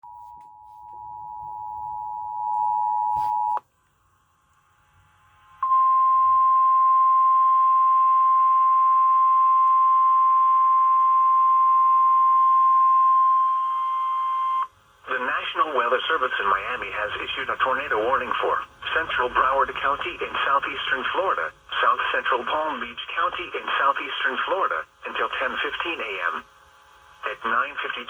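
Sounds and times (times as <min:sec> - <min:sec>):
steady alarm tone: 0:00.0 - 0:03.6, 0:05.6 - 0:14.7.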